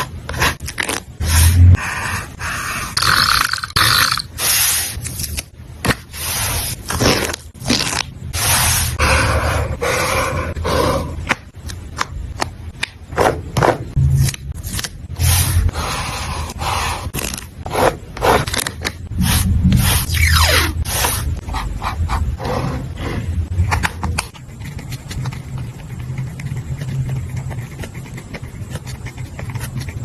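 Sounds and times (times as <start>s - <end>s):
paper scratching and rustling: 24.2s - 30.0s.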